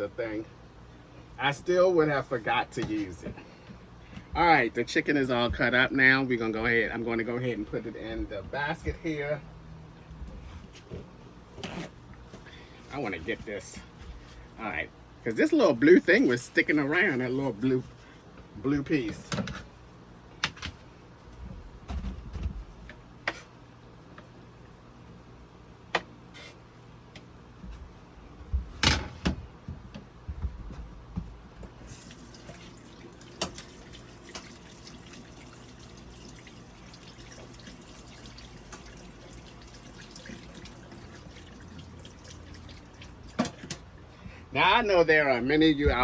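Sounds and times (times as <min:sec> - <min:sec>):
kitchen tap running into sink: 0:31.9 - 0:43.8.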